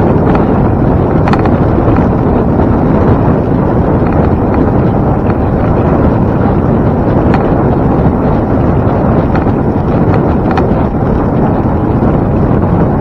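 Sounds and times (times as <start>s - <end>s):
wind buffeting microphone: 0.0s - 13.0s
faint ticks: 1.2s - 2.1s.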